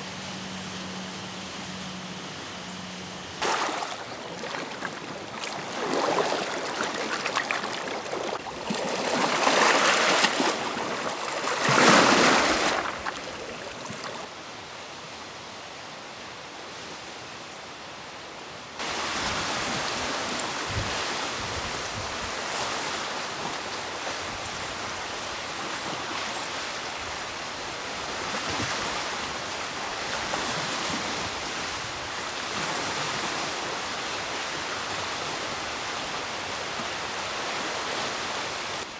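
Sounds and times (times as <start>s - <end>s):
rushing water: 0.0s - 14.3s, 18.8s - 38.9s
wind noise: 18.9s - 22.5s.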